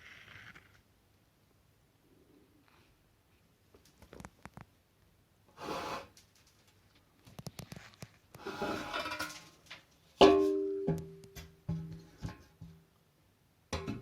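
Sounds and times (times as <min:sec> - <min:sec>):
metal rule scraping plaster wall: 0:05.5 - 0:06.6, 0:08.3 - 0:09.8.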